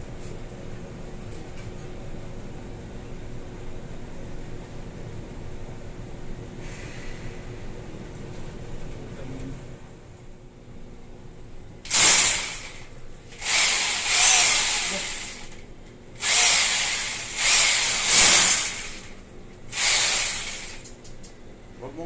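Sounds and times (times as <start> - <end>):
power drill grinding: 11.9 - 15.6, 16.2 - 19.1, 19.7 - 20.9.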